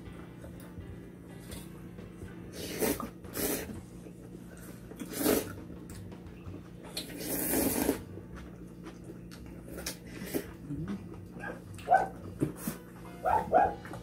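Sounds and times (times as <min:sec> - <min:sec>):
people slurping noodles: 0:02.5 - 0:03.8, 0:04.6 - 0:05.6, 0:07.0 - 0:08.1, 0:09.6 - 0:11.1.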